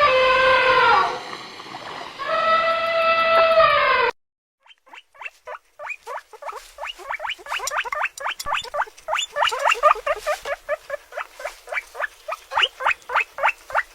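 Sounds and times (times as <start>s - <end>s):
small animals squeaking: 4.6s - 13.9s.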